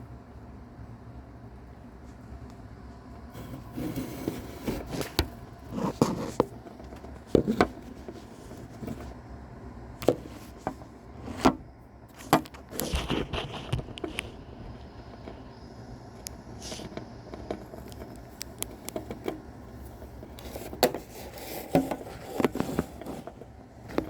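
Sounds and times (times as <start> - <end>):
scratchy rustles: 3.3 - 9.2, 12.1 - 14.5, 16.6 - 24.0.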